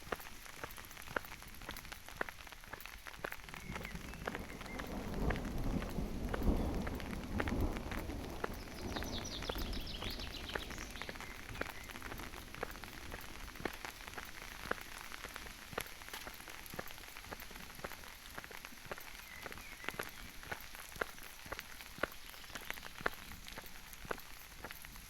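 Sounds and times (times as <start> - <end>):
rain hissing: 0.0 - 25.0
raindrops tapping on leaves: 0.0 - 25.0
low thunder rumble: 3.5 - 13.8.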